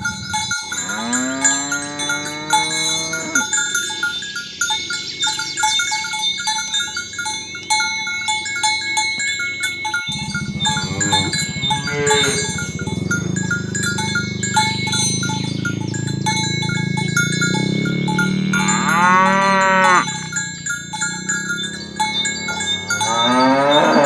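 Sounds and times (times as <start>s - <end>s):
cows mooing: 0.0s - 3.8s, 10.1s - 24.0s
cattle bells clinking: 0.0s - 24.0s.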